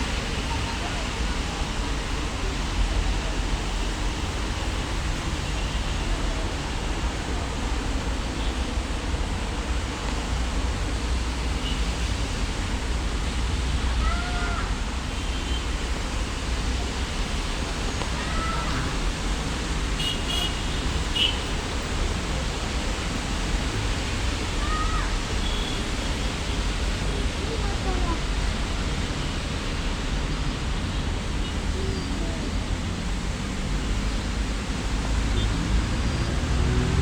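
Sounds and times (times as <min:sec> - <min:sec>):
steady rain: 0:00.0 - 0:37.0.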